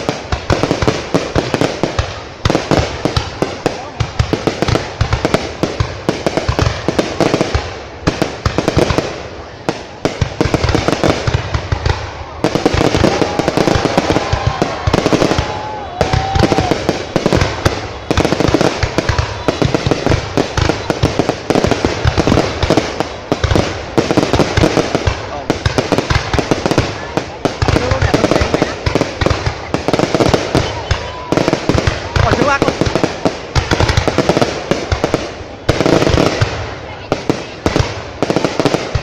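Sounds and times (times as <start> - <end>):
fireworks crackling and popping: 0.0 - 39.0
fireworks whistling: 0.0 - 39.0.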